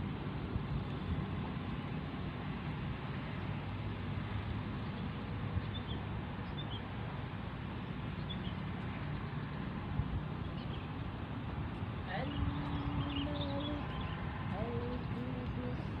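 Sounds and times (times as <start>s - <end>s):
steady outdoor hiss: 0.0s - 16.0s
small birds chirping: 10.4s - 16.0s.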